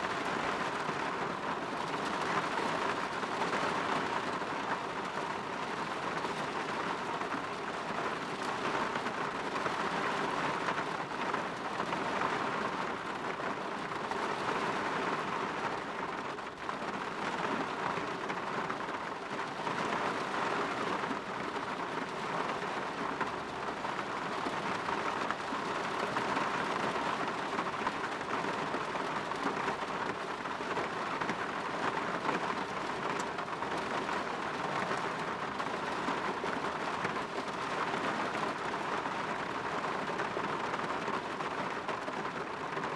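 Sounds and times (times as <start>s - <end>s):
rain on a window: 0.0s - 42.9s.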